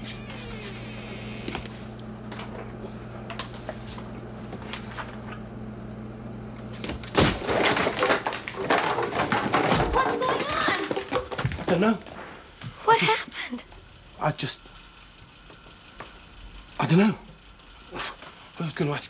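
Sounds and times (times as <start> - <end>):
steady low hum: 0.0 - 9.8
clattering and knocking: 7.6 - 12.3.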